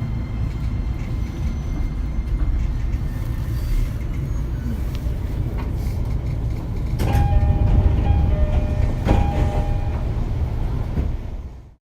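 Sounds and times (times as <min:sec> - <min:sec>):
train low rumble: 0:00.0 - 0:11.8
train wheel clack: 0:05.5 - 0:11.3.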